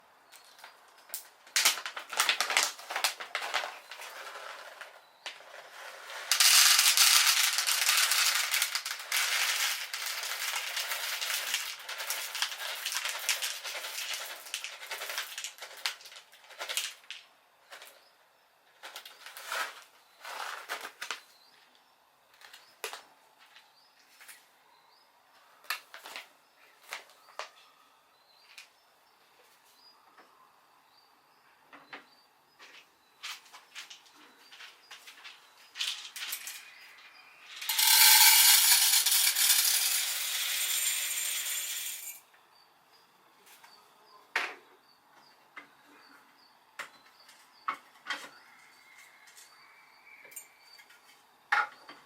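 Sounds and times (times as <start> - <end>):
coffee beans clattering: 1.6 - 17.2, 37.5 - 42.2.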